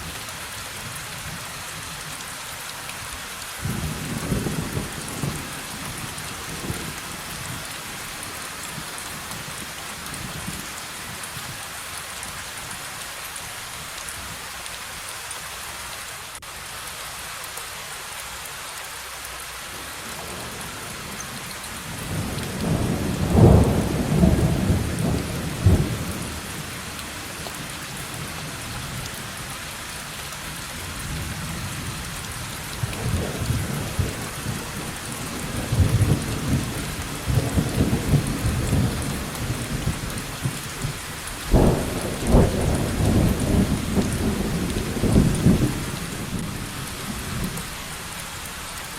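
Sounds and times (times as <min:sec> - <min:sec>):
rain hissing: 0:00.0 - 0:48.9
rolling thunder: 0:32.8 - 0:47.6.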